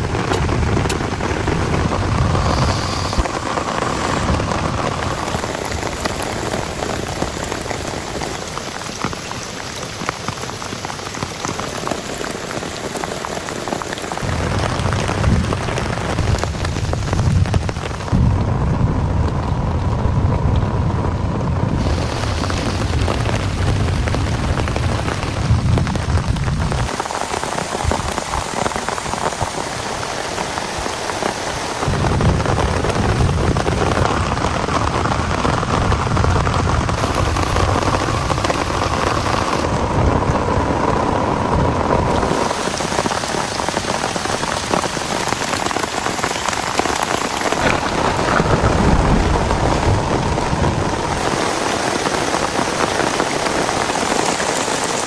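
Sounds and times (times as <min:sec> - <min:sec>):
heavy rain pouring: 0:00.0 - 0:55.0
low rumble: 0:14.2 - 0:26.9, 0:47.4 - 0:51.8.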